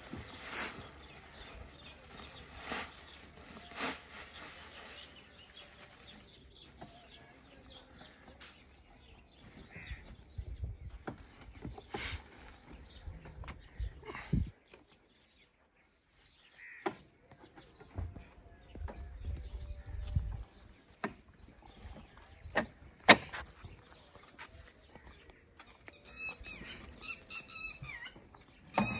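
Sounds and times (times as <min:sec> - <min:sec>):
bird chirps: 0:15.7 - 0:28.9.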